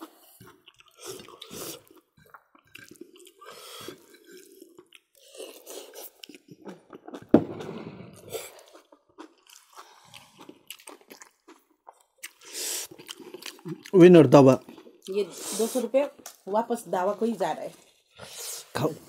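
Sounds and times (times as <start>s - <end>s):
people chewing: 0.0s - 19.0s
sharp knock: 7.4s - 8.0s.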